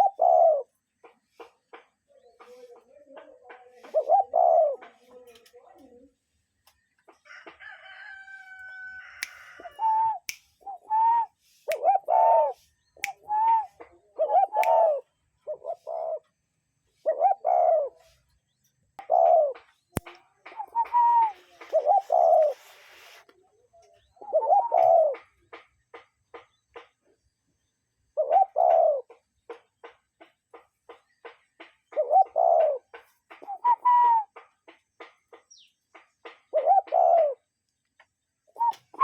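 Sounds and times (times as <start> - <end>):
bird cooing: 0.0 - 0.8, 2.1 - 6.1, 9.4 - 16.4, 17.0 - 18.2, 19.0 - 19.8, 20.5 - 22.8, 23.8 - 25.4, 28.2 - 29.2, 31.9 - 34.4, 36.4 - 37.5, 38.5 - 39.0.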